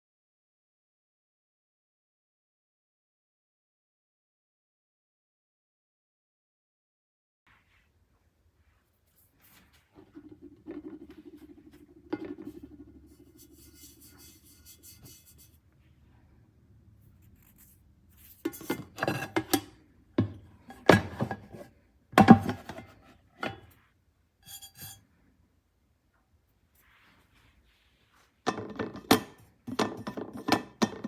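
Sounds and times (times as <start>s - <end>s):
pots and pans clanking: 10.0s - 15.4s, 18.5s - 23.7s, 28.5s - 31.0s.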